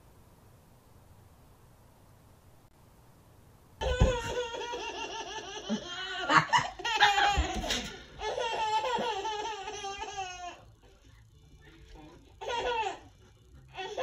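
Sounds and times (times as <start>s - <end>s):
baby giggling: 3.8s - 10.6s, 12.4s - 13.1s.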